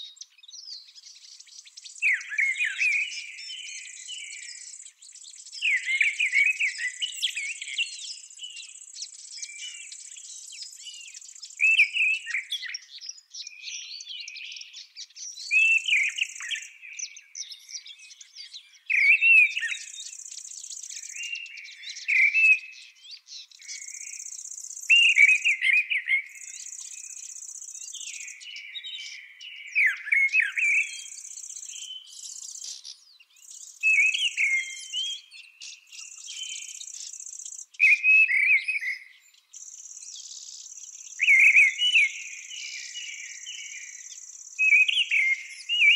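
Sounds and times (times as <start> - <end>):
songbird warbling: 39.6 - 45.9.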